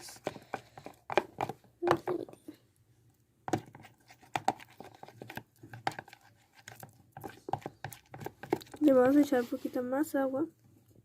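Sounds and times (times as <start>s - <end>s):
spoon stirring sticky mixture: 0.0s - 10.3s.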